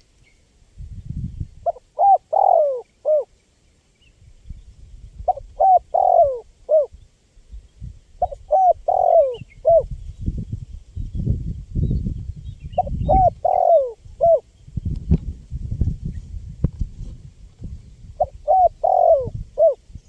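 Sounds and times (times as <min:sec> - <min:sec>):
dove cooing: 0:01.6 - 0:03.3, 0:05.2 - 0:07.0, 0:08.2 - 0:09.9, 0:12.8 - 0:14.5, 0:18.2 - 0:19.9.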